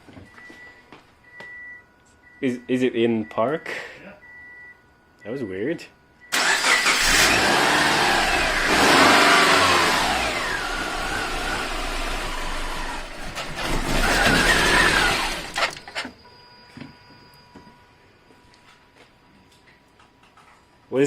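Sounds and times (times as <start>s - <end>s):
car engine revving: 6.4s - 15.8s.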